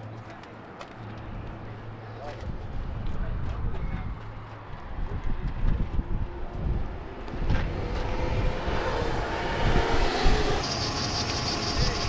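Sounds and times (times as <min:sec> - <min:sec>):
low rumble on microphone: 0:04.9 - 0:12.0
engine running: 0:06.7 - 0:12.0.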